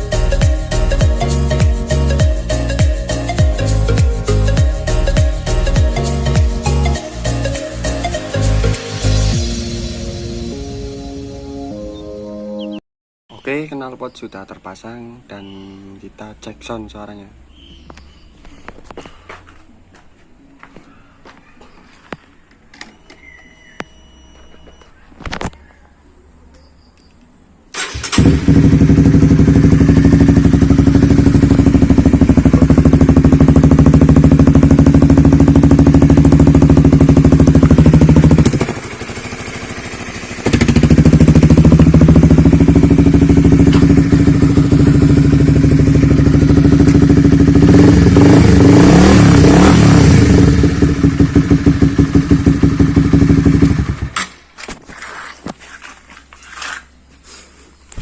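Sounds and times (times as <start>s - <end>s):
motorcycle engine idling and revving: 0.0s - 9.5s, 27.8s - 54.2s.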